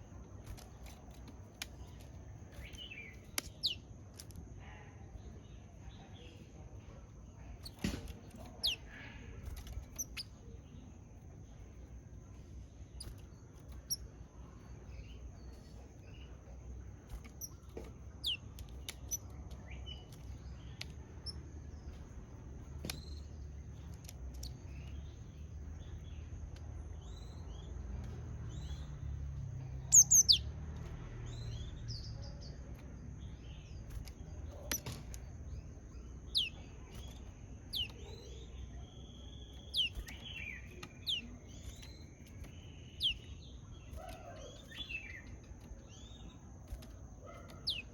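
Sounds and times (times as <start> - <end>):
bird sharp high chirps: 1.7 - 3.9, 7.4 - 10.6, 12.9 - 22.0, 26.9 - 32.6, 33.3 - 47.9.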